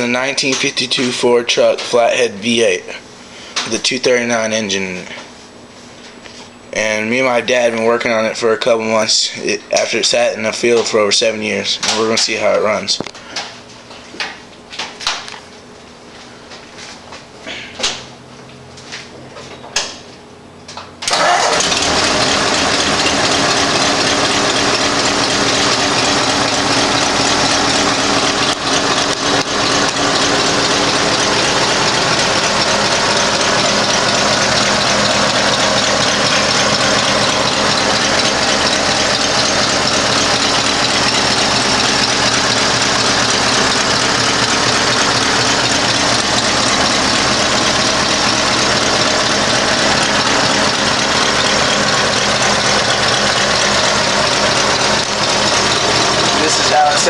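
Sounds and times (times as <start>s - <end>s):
truck engine starting and idling: 20.7s - 57.0s.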